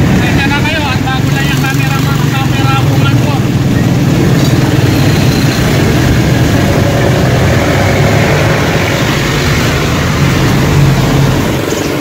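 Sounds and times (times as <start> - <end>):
motorcycle engine running: 0.0 - 11.6
road noise: 0.0 - 12.0.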